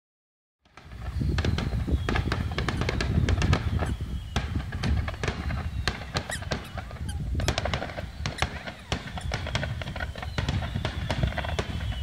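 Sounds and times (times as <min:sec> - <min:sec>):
fireworks bangs and crackles: 0:00.6 - 0:12.0.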